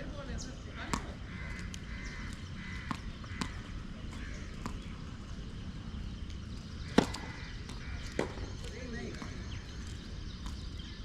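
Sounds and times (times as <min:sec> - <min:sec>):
light tennis ball knocks: 0:00.8 - 0:01.8, 0:02.8 - 0:05.0, 0:06.2 - 0:09.4
racket striking tennis ball: 0:00.8 - 0:05.0, 0:06.9 - 0:09.4.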